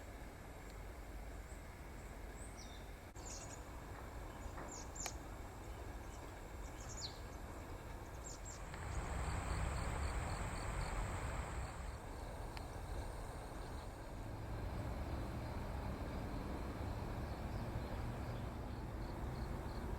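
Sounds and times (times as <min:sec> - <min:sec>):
small birds chirping: 0:02.3 - 0:12.0, 0:16.3 - 0:19.9
broad rushing noise: 0:08.5 - 0:17.8.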